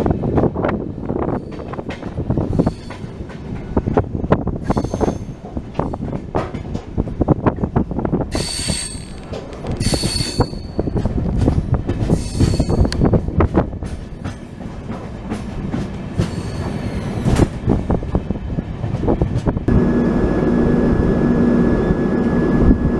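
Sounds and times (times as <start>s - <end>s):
train wheel clatter: 0.0s - 19.7s
high-pitched wheel squeal: 8.4s - 10.9s.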